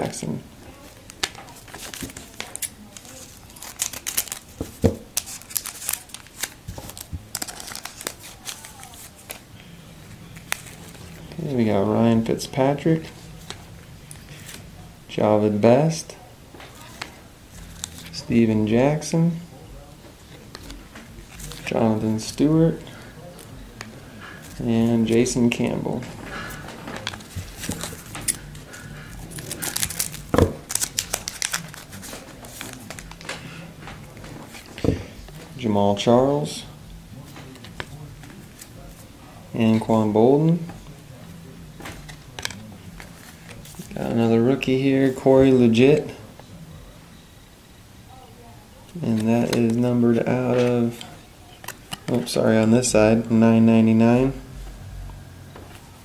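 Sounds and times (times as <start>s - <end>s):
cards being handled: 0.9s - 14.7s, 16.6s - 18.4s, 20.2s - 35.6s, 37.2s - 39.1s, 41.7s - 46.1s, 48.9s - 52.9s
wrapper crinkling and tearing: 1.1s - 9.4s, 27.0s - 33.4s.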